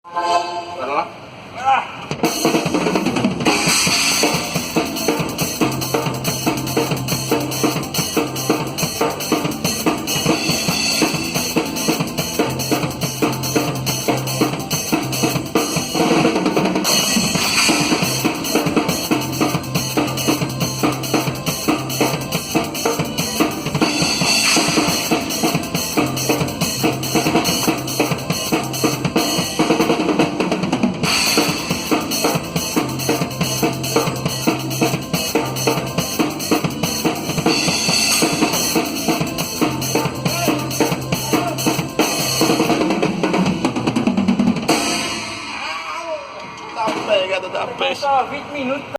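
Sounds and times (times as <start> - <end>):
low held note: 0.0 - 1.2
drum kit groove: 2.0 - 45.9.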